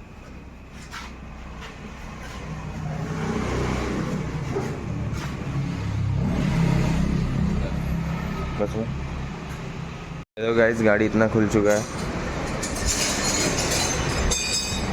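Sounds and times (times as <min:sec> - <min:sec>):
vehicle engine rumble: 0:00.0 - 0:10.3.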